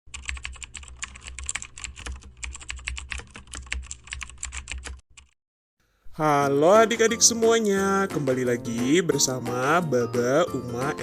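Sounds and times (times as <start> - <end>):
rapid keyboard typing: 0.1 - 5.4.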